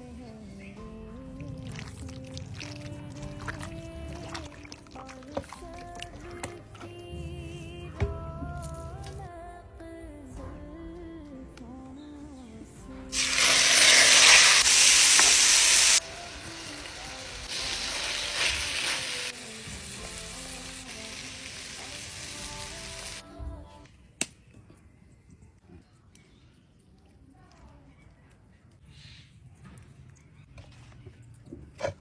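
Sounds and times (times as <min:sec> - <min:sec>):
background music: 0:00.0 - 0:23.9
food sizzling in hot oil: 0:13.1 - 0:23.2.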